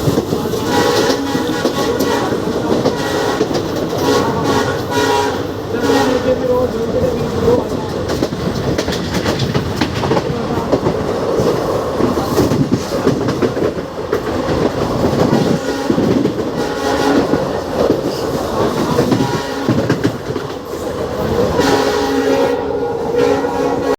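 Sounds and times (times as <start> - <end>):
diesel train running: 0.0 - 23.9
train horn: 0.6 - 6.5, 15.4 - 17.6, 19.0 - 20.1, 21.4 - 23.9.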